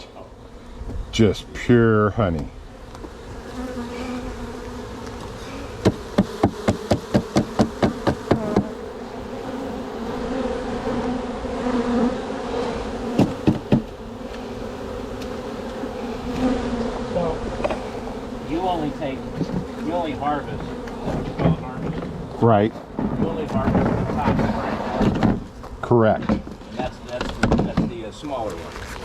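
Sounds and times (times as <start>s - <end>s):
honeybees buzzing: 0.0s - 29.0s
sharp knocks: 5.8s - 8.7s, 13.2s - 13.9s.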